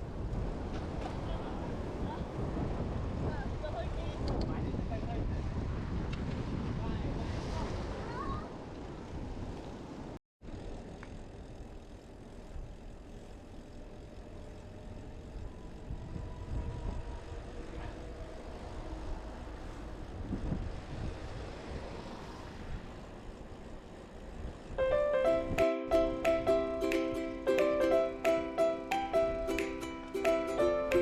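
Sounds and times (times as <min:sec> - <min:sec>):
low outdoor rumble: 0:09.8 - 0:27.4
plucked ukulele music: 0:24.8 - 0:31.0.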